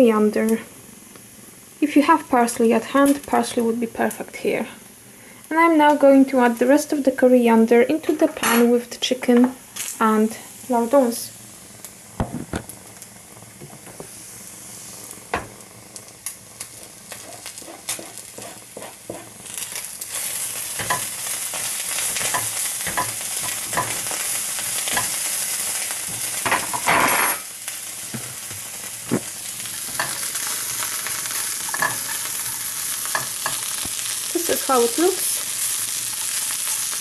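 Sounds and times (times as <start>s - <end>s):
meat sizzling in a pan: 9.6s - 37.0s.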